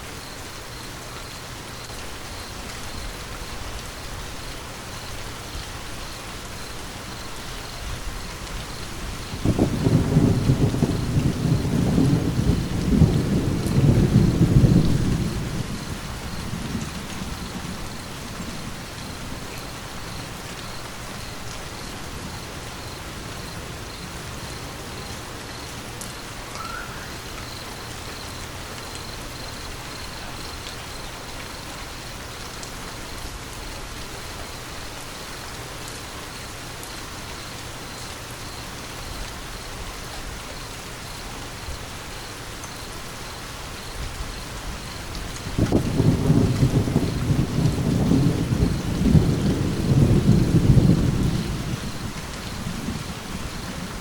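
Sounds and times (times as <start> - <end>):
steady rain: 0.0 - 54.0
thunder rumbling: 7.9 - 24.2, 44.2 - 54.0.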